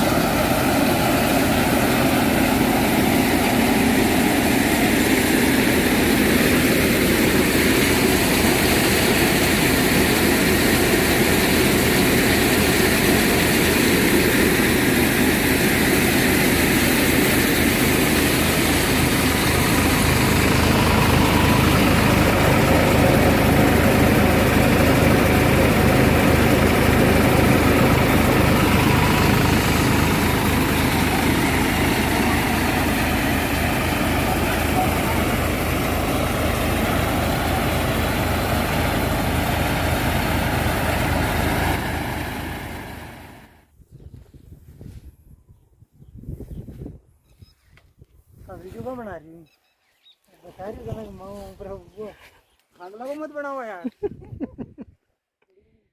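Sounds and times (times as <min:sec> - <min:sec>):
thresher whirring: 0:00.0 - 0:43.6
tractor diesel engine running: 0:00.0 - 0:43.7.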